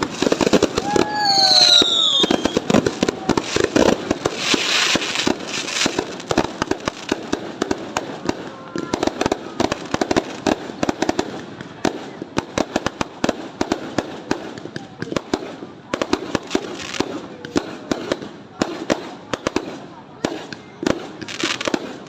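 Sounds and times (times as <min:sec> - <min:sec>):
fireworks hissing crackle: 0:00.0 - 0:22.0
fireworks popping and banging: 0:00.0 - 0:22.0.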